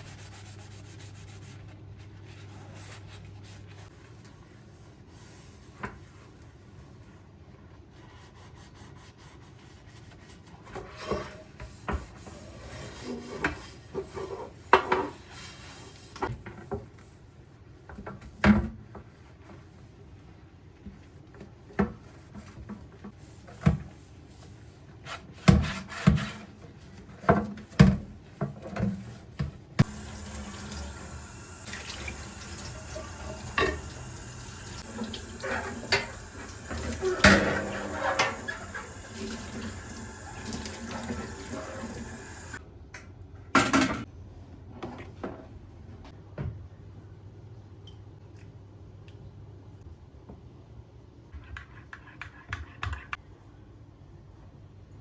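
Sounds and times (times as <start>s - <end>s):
kitchen tap running: 29.8s - 42.6s
dishes and utensils clinking: 32.1s - 39.7s.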